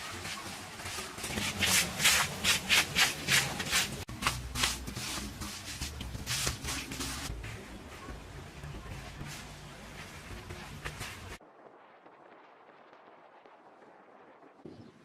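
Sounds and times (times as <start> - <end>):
rhythmic rubbing strokes: 0.0 - 11.4.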